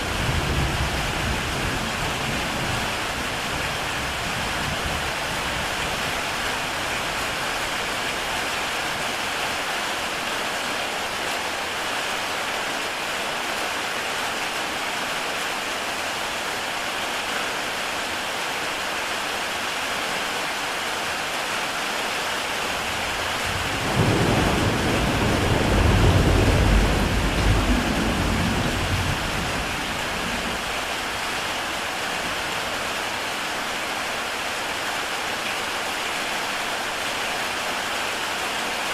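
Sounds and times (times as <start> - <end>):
heavy rain on a tile roof: 0.0 - 38.9
thunder rumbling: 22.8 - 30.9.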